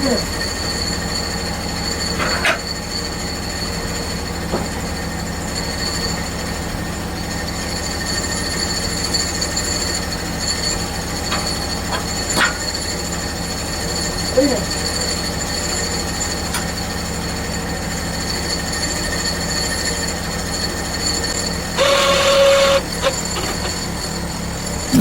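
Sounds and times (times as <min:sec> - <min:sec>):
bandsaw mill engine humming: 0:00.0 - 0:25.0
high blade whine: 0:17.7 - 0:25.0.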